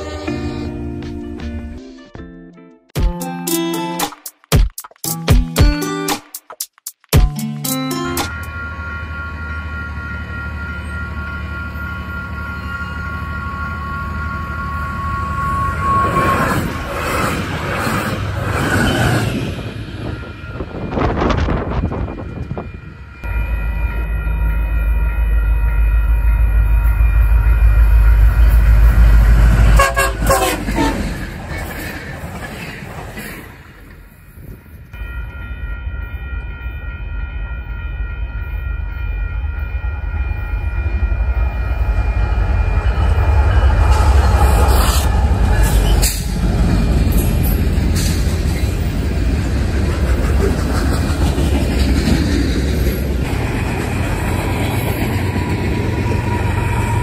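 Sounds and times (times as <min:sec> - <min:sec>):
train horn chord: 0:00.0 - 0:01.1, 0:08.3 - 0:16.5, 0:27.2 - 0:31.1
freight train rumbling: 0:08.3 - 0:57.0
wind buffeting microphone: 0:19.4 - 0:23.1.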